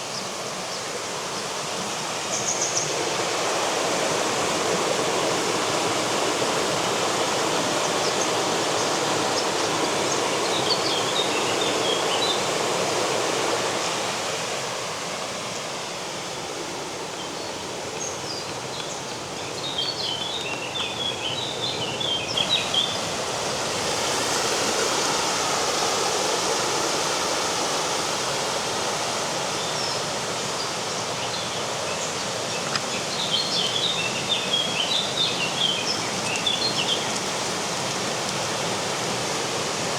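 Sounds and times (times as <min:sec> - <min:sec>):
river water rushing: 0:00.0 - 0:39.9
small birds twittering: 0:06.8 - 0:12.6, 0:17.1 - 0:23.2, 0:29.5 - 0:38.8.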